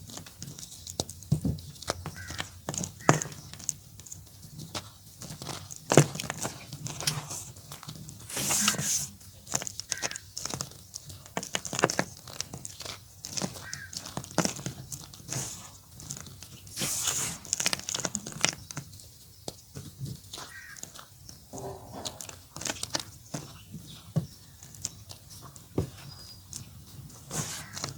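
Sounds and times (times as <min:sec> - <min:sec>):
chalk crunching: 0:01.9 - 0:27.9
chalk rustling: 0:08.2 - 0:09.2, 0:16.7 - 0:18.0, 0:27.2 - 0:27.9.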